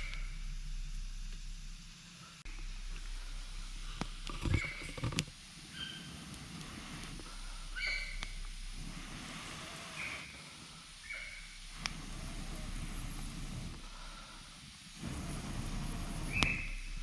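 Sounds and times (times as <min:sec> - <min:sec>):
animal high calls: 0:07.7 - 0:08.4
campfire crackling and popping: 0:11.5 - 0:16.7.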